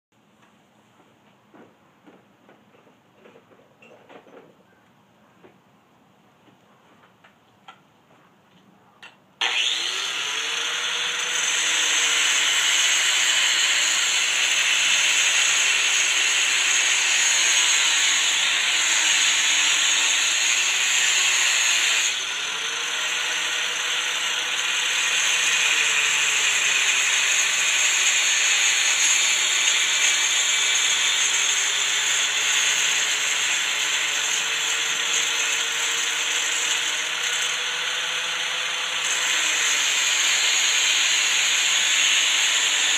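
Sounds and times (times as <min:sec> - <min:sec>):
angle grinder grinding: 0:09.4 - 0:42.9.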